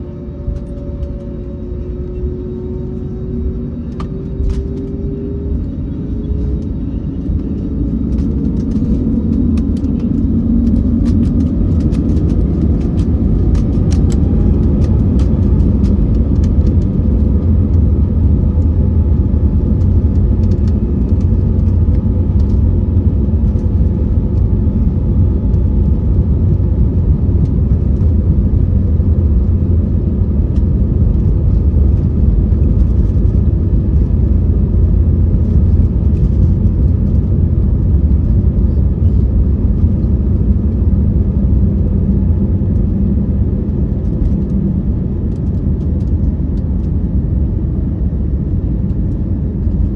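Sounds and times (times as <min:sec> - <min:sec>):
engine whine: 0:00.0 - 0:49.9
jet engines rumbling at takeoff: 0:00.0 - 0:49.9
sharp clicks and rattles: 0:08.1 - 0:16.9.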